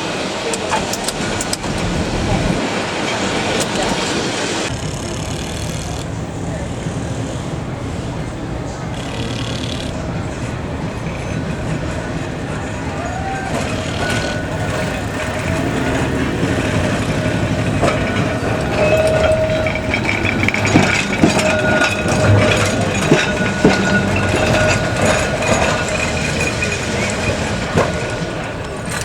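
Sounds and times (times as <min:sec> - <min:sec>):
electric tram whine: 0:00.0 - 0:29.0
sharp clicks and knocks: 0:13.5 - 0:29.0.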